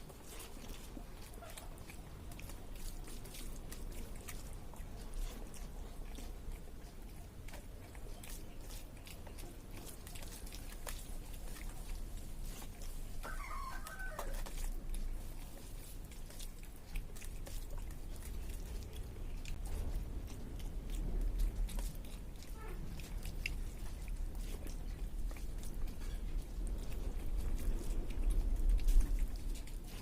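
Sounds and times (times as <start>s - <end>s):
eating clicks: 0.0s - 30.0s
chicken calling: 13.2s - 14.5s.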